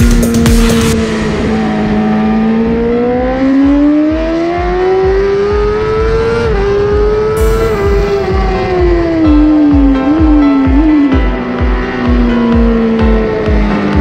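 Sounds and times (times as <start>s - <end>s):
motorcycle engine revving up: 0.0s - 11.2s.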